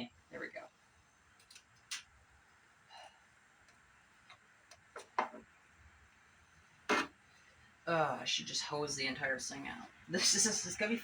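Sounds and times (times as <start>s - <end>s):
monitor parts clicking and knocking: 4.3s - 5.5s.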